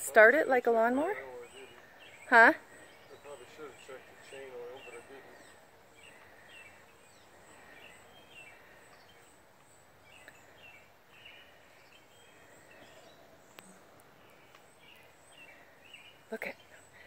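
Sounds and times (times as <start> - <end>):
small birds chirping: 0.0 - 17.0
faint clicks: 13.5 - 15.1.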